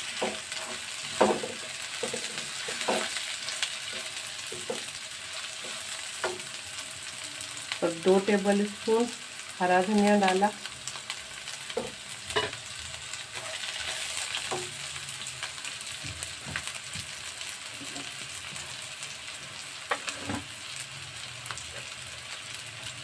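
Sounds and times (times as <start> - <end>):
spatula scraping pan: 0.0 - 6.4, 13.3 - 14.6, 19.5 - 20.6
vegetables sizzling in oil: 0.0 - 23.0.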